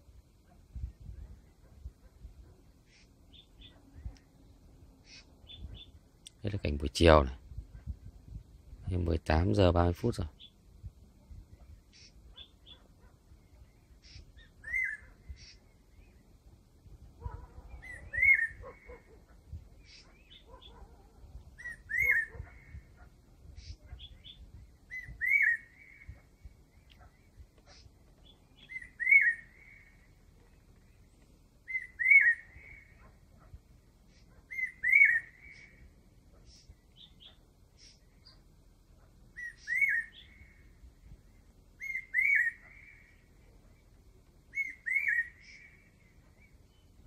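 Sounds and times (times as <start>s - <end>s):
bird chirps: 2.4s - 6.0s, 11.6s - 16.4s, 17.2s - 21.0s, 21.6s - 47.0s
cuckoo whistled call: 17.8s - 18.6s, 21.6s - 22.4s, 31.7s - 33.0s, 39.4s - 40.3s.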